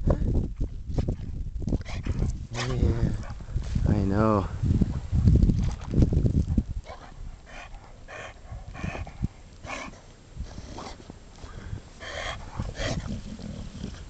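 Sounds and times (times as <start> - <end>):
wind on microphone: 0.0 - 9.4, 10.4 - 10.9, 11.5 - 14.0
dog breathing hard: 7.2 - 14.0.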